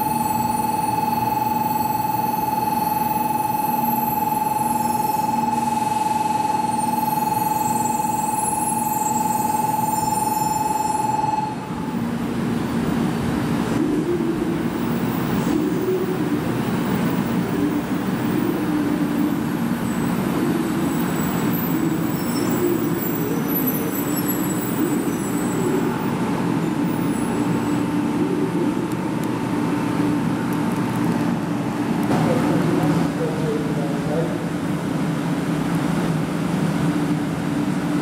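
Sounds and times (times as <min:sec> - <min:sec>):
high steady tone: 0:00.0 - 0:12.8, 0:13.8 - 0:30.7
train electrical hum: 0:00.0 - 0:38.0.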